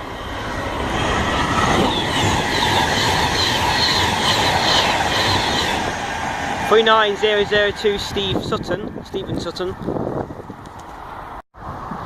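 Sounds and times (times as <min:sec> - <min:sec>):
electric train rumbling: 0:00.0 - 0:12.0
train wheels squealing: 0:00.2 - 0:05.9.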